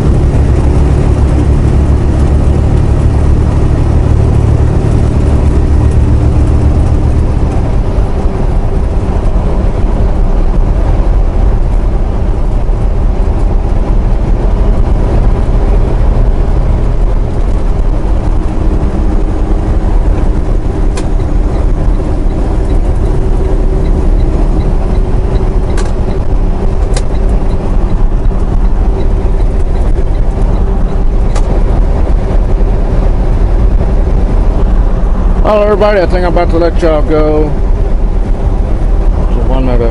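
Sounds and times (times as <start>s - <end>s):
truck engine and tyre rumble: 0.0s - 39.9s.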